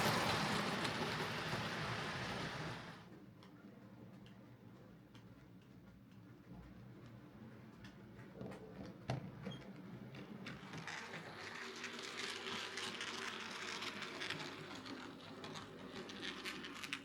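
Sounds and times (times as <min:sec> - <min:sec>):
model train motor and gears whirring: 0:00.0 - 0:03.0, 0:10.4 - 0:17.0.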